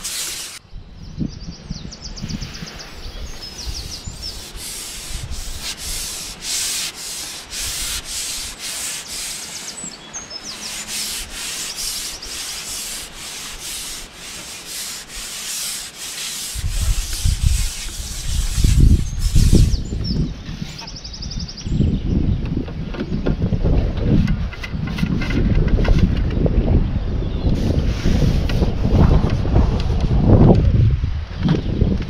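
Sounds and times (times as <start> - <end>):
rasping rubbing strokes: 0.0 - 0.6, 2.4 - 20.9, 27.6 - 29.2
wind buffeting on microphone: 0.0 - 9.4, 16.4 - 32.0
small birds chirping: 0.0 - 23.6.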